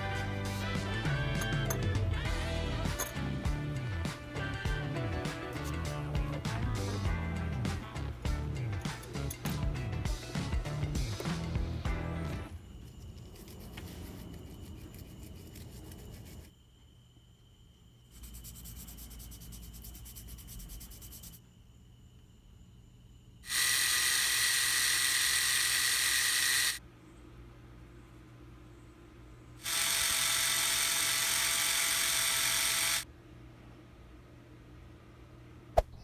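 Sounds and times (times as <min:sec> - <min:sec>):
small device buzzing: 0:23.4 - 0:26.8, 0:29.6 - 0:33.1.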